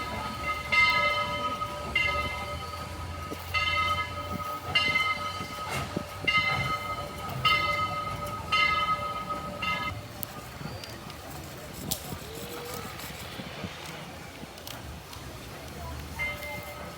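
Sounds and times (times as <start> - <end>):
low train rumble: 0.0 - 16.9.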